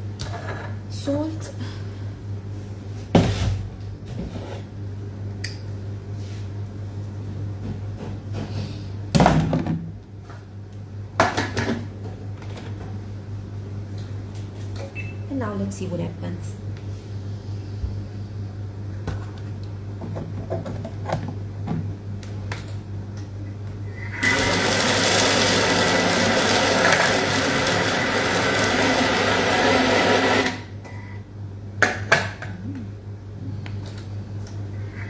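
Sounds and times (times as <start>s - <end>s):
electric blender running: 24.1s - 30.8s.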